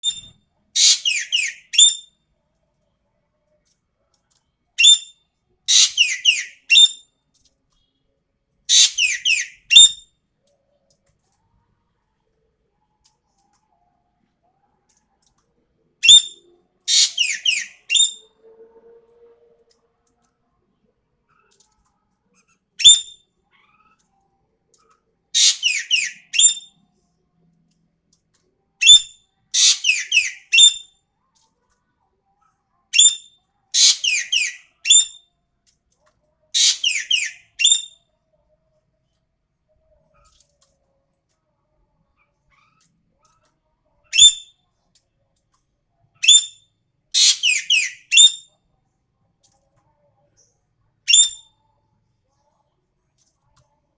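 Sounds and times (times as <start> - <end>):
bird whistled song: 0.0 - 2.2, 4.8 - 7.1, 8.7 - 10.1, 16.0 - 18.3, 22.8 - 23.2, 25.4 - 26.8, 28.8 - 30.9, 33.0 - 35.2, 36.6 - 38.0, 44.1 - 44.5, 46.2 - 46.6, 47.2 - 48.5, 51.1 - 51.5.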